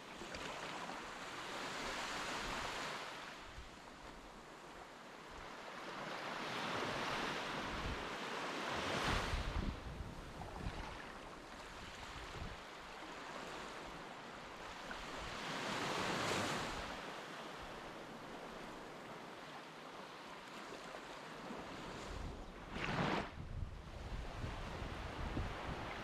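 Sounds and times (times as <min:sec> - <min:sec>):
wind rumbling on microphone: 0:08.9 - 0:11.2, 0:22.0 - 0:26.0.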